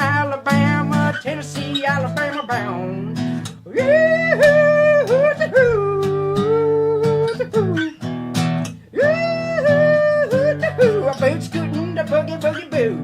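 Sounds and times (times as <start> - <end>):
man singing: 0.0 - 8.1, 8.9 - 13.0
strummed acoustic guitar: 0.0 - 13.0.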